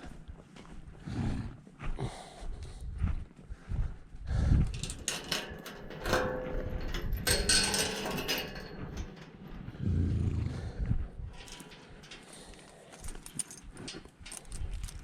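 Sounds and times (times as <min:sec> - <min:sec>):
hard objects clattering and clanking: 0:04.7 - 0:09.8, 0:11.3 - 0:15.0.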